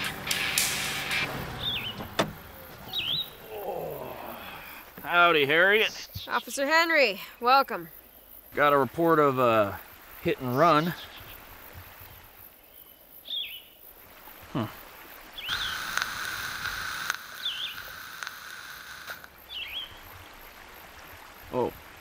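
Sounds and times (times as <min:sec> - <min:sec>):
bird chirping: 0:00.0 - 0:04.2, 0:12.6 - 0:13.8, 0:15.4 - 0:15.8, 0:17.3 - 0:17.9, 0:19.5 - 0:20.0
background hiss: 0:00.0 - 0:22.0.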